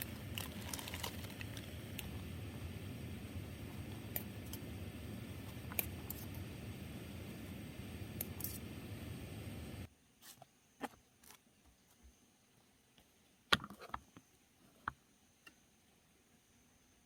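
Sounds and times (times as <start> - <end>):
steady hiss: 0.0 - 10.5.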